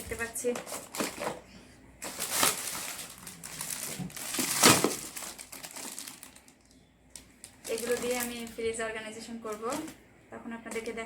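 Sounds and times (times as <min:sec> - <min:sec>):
plastic packaging crinkling: 0:00.4 - 0:01.4, 0:02.0 - 0:08.8.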